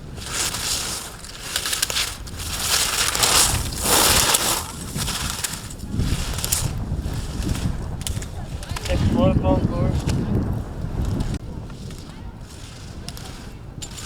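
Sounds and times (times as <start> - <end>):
skis scraping over snow: 0.0 - 14.0.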